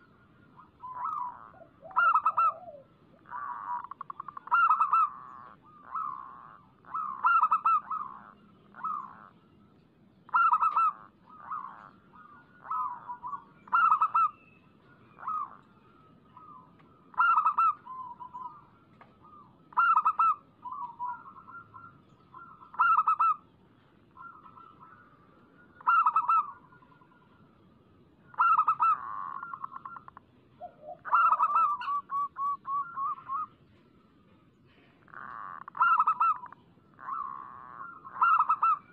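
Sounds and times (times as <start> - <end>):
doves cooing: 0.0 - 9.4, 10.3 - 27.3, 28.2 - 38.9.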